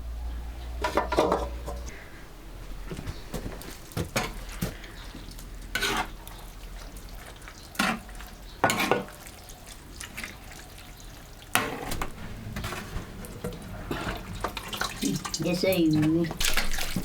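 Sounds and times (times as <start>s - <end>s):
spatula scraping a pan: 0.8s - 2.0s, 4.0s - 9.5s, 11.5s - 15.0s.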